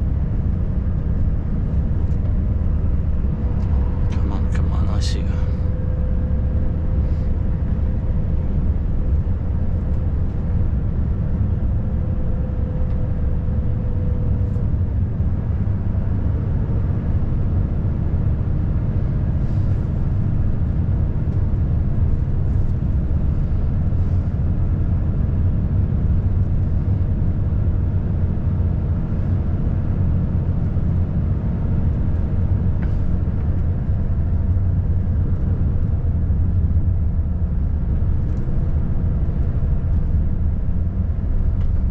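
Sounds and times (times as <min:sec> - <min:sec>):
road noise: 0:00.0 - 0:41.9.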